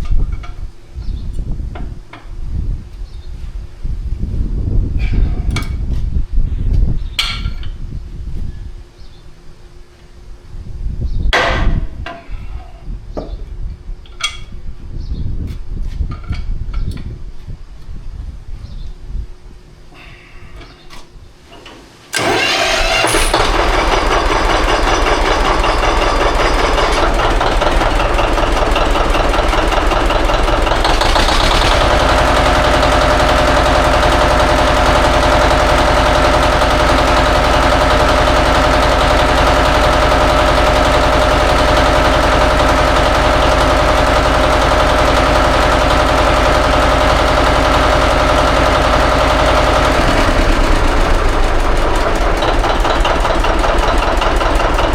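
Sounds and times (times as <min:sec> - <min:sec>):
tractor engine running: 0:22.1 - 0:54.9.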